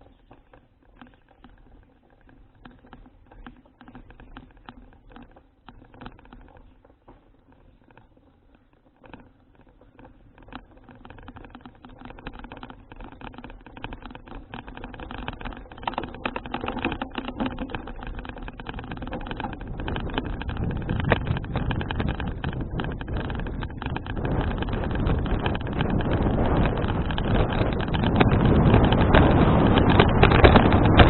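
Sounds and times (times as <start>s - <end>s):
clicks and rattles: 0.0s - 31.0s
wind buffeting microphone: 12.8s - 31.0s.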